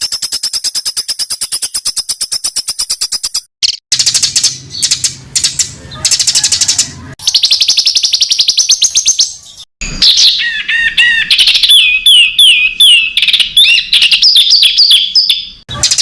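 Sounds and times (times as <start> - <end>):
songbird trill: 0.0 - 16.0.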